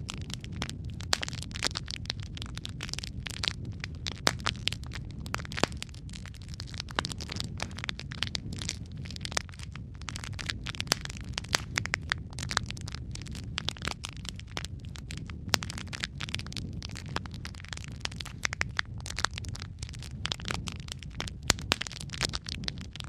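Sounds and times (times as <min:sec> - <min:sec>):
fire crackling and popping: 0:00.0 - 0:23.0
low rumble of burning fire: 0:00.0 - 0:23.0.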